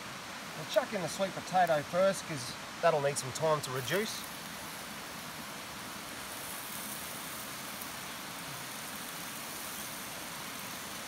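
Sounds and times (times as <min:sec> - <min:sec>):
frying hiss with small pops: 0:00.0 - 0:11.0.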